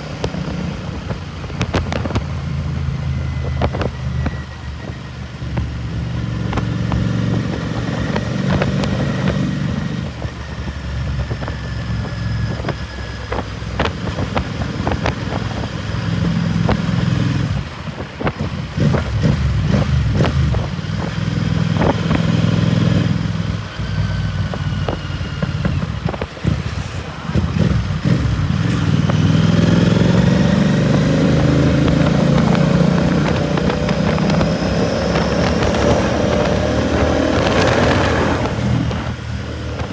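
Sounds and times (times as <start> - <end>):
motorcycle exhaust revving: 0.0 - 39.9
exhaust crackles: 13.4 - 39.9.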